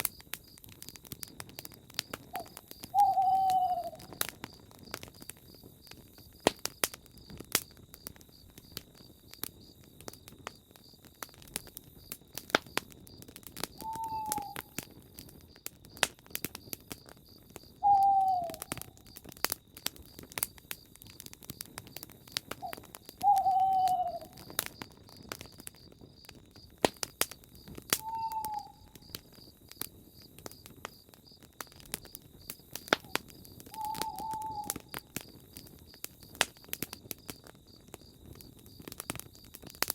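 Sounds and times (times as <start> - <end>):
campfire crackling and popping: 0.0 - 39.9
bird hooting: 2.3 - 4.1, 13.8 - 14.8, 17.8 - 18.8, 22.6 - 24.4, 28.0 - 28.9, 33.7 - 34.8.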